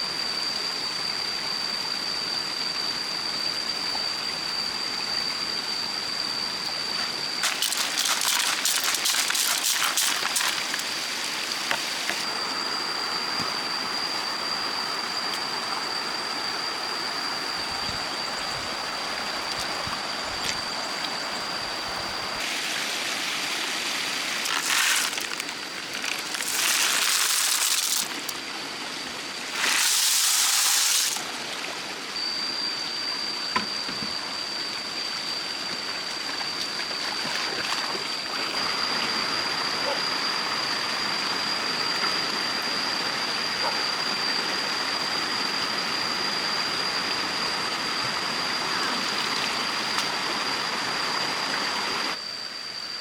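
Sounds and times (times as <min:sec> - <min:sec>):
water splashing: 0:07.4 - 0:12.3, 0:22.4 - 0:28.4, 0:29.4 - 0:31.3
stream water running: 0:07.4 - 0:17.4, 0:18.0 - 0:32.2, 0:35.7 - 0:39.3, 0:47.0 - 0:52.2.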